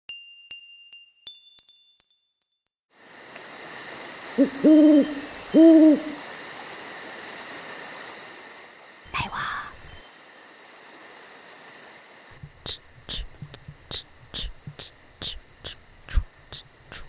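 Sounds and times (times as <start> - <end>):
insects chirring: 3.0 - 17.0
owl hooting: 4.2 - 6.4, 9.1 - 10.0, 12.4 - 17.0.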